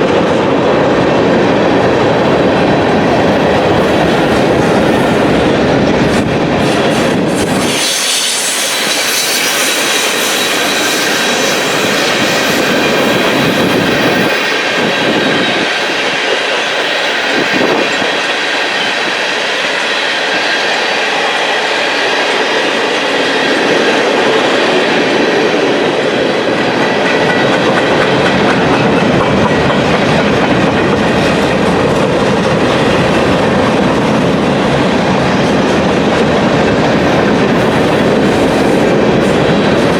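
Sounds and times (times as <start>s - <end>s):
train wheels clattering: 2.2s - 39.9s
high wheel squeal: 7.0s - 14.2s.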